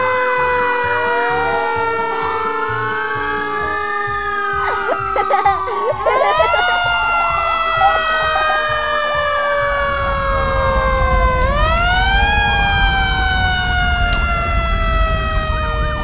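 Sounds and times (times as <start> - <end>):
fire engine siren wailing: 0.0 - 16.0.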